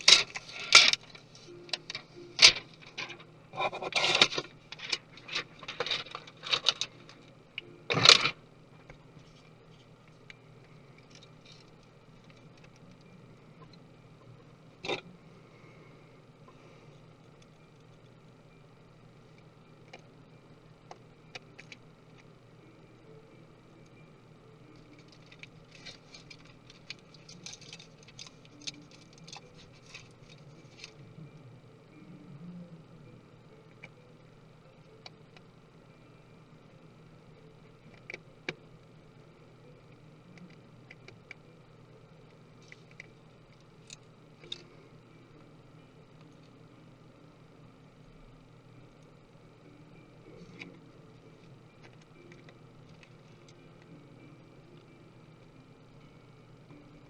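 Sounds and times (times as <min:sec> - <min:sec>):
small tools clicking and tapping: 0:24.8 - 0:31.0.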